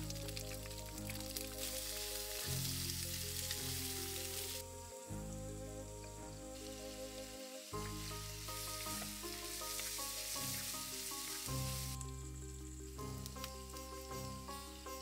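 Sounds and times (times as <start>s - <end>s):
onions sizzling in hot oil: 1.3s - 4.6s, 6.6s - 12.0s.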